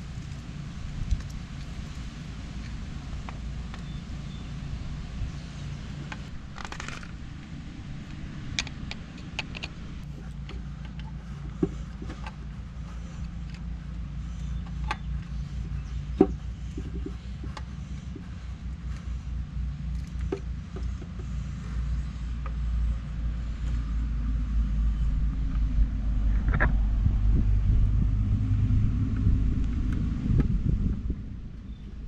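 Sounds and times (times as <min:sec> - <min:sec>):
engine idling: 0:00.0 - 0:32.0
sharp clicks and knocks: 0:08.0 - 0:13.7, 0:14.4 - 0:19.2.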